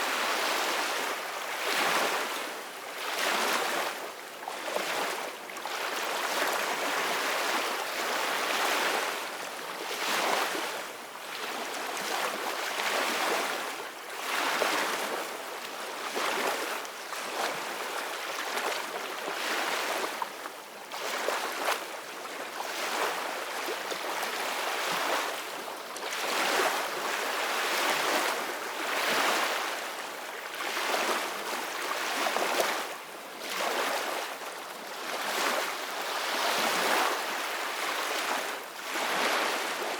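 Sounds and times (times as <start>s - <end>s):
ocean waves breaking on beach: 22.5s - 39.9s.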